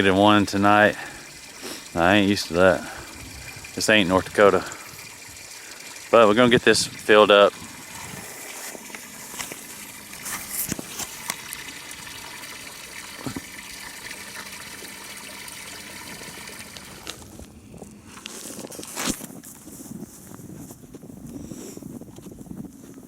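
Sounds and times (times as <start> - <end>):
hose water pouring into trough: 0.0 - 17.3.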